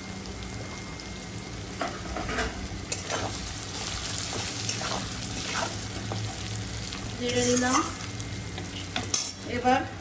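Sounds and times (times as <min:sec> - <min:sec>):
potatoes sizzling in hot oil: 0:00.2 - 0:10.0
metal spatula scraping a pan: 0:07.2 - 0:08.0.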